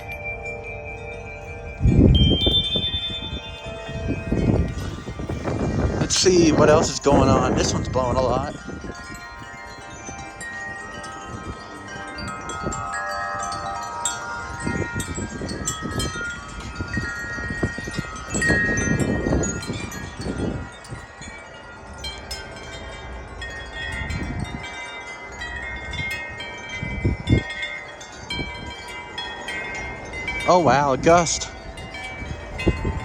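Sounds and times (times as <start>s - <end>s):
metal wind chimes ringing: 0.0s - 33.0s
wind gusts on microphone: 0.0s - 33.0s.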